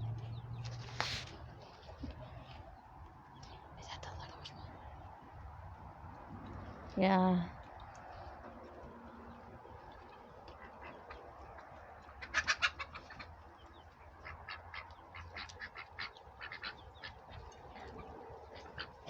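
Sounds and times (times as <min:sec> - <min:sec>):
ducks quacking: 0:08.6 - 0:19.0.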